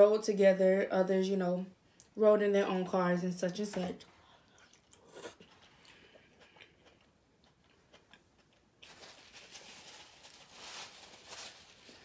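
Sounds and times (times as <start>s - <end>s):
chewing and wet mouth clicks: 4.5s - 8.7s
paper napkin rustling: 8.8s - 12.0s.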